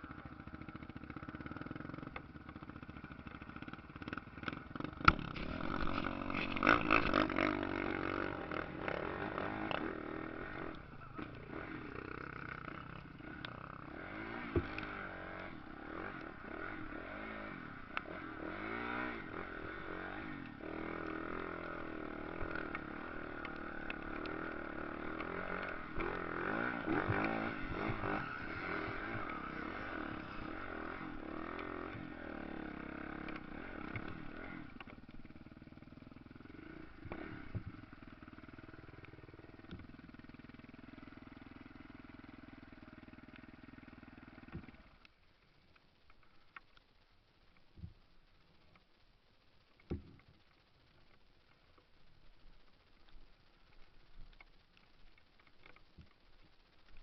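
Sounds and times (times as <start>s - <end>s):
dirt bikes revving and passing: 0.0s - 44.8s.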